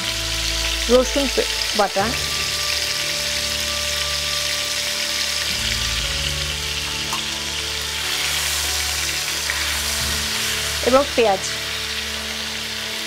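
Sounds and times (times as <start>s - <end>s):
shrimp sizzling in oil: 0.0s - 13.0s
soft background music: 0.0s - 13.0s.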